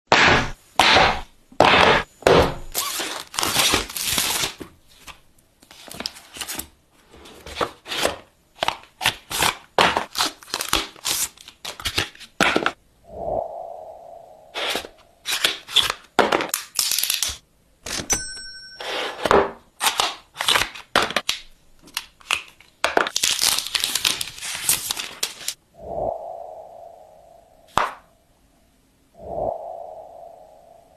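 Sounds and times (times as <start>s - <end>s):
packaging crinkling and tearing: 2.7s - 6.7s, 8.0s - 12.3s, 15.3s - 17.4s, 19.8s - 25.6s.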